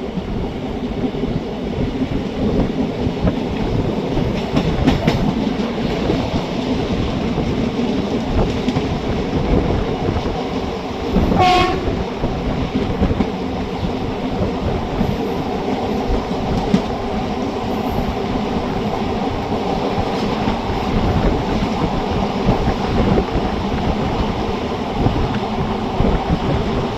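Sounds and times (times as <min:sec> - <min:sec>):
train wheels rumbling on track: 0:00.0 - 0:26.9
train horn: 0:11.2 - 0:12.0.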